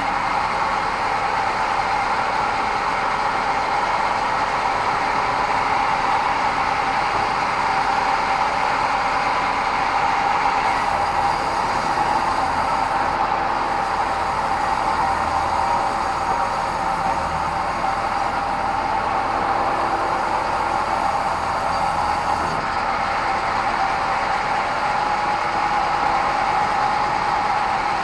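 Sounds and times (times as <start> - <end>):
bandsaw running: 10.6 - 22.6.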